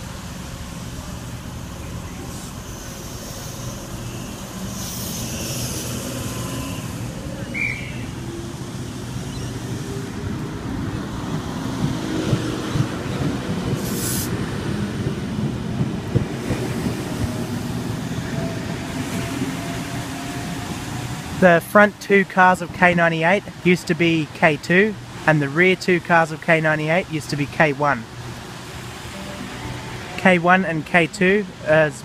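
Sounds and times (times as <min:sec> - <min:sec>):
electric train rumble: 0:00.0 - 0:21.5, 0:28.1 - 0:30.3.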